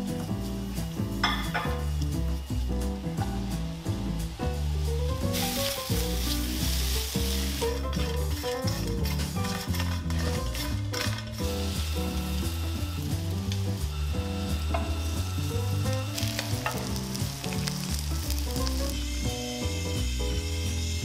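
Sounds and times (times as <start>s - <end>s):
background music with bass: 0.0s - 21.0s
food sizzling in pans: 0.0s - 21.0s
spatula scraping metal pan: 7.4s - 11.6s.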